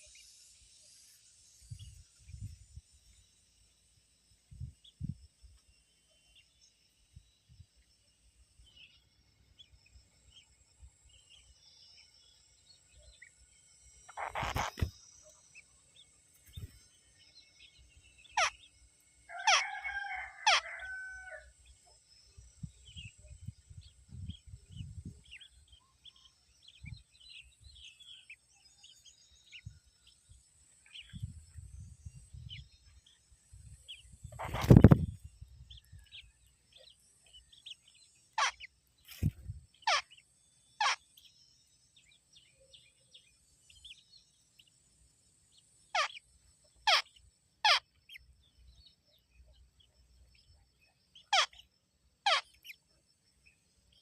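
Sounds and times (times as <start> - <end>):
high insect drone: 0.0 - 54.0
small birds chirping: 0.0 - 54.0
rooster crowing: 19.3 - 21.5.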